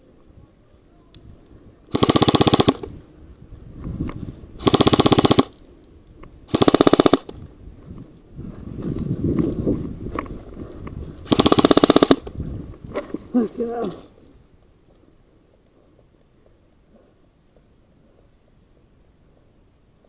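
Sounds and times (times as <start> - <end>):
airsoft gun bursts: 1.9 - 2.9, 4.6 - 5.6, 6.5 - 7.4, 11.3 - 12.3.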